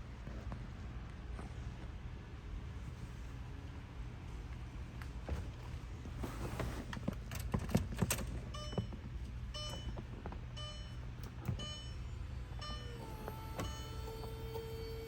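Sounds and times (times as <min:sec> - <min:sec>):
car warning chime beeping: 0:08.5 - 0:15.0
electric motor whine: 0:12.6 - 0:15.0.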